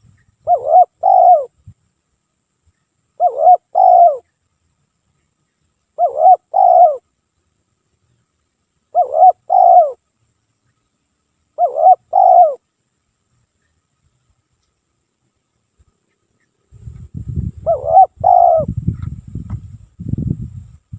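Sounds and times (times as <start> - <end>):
dove cooing: 0.4 - 1.5, 3.2 - 4.3, 6.0 - 7.0, 8.9 - 10.0, 11.6 - 12.6, 17.6 - 18.8.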